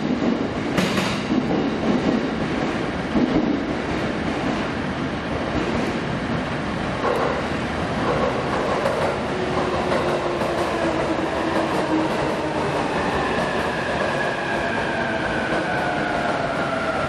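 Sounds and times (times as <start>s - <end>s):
train wheels rumbling on rail: 0.0s - 17.0s
train whining tones: 8.9s - 17.0s.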